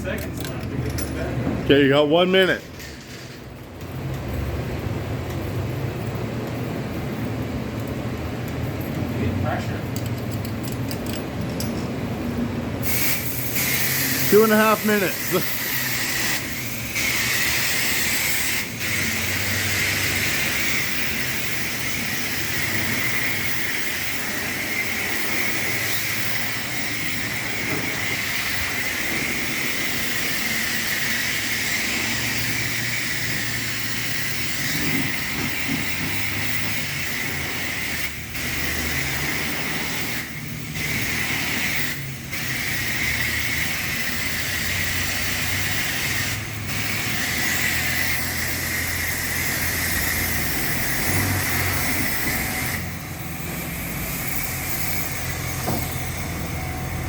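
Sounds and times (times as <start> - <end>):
pressure washer spraying: 12.8 - 57.0.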